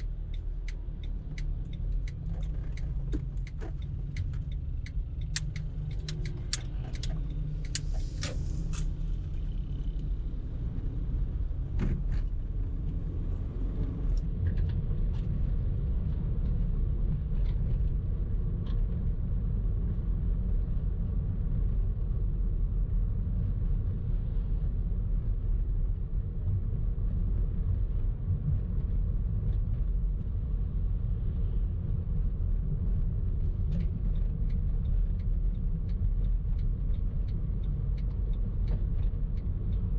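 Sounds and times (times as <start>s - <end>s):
sharp clicks: 0.0s - 7.9s
car engine and road noise: 0.0s - 39.9s.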